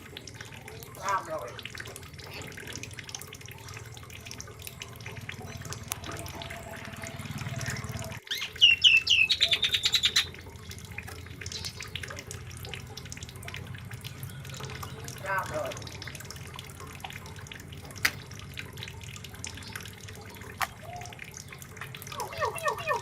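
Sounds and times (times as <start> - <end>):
songbird chirping and trilling: 4.9 - 10.5, 11.1 - 12.0, 13.4 - 16.8, 19.5 - 23.0.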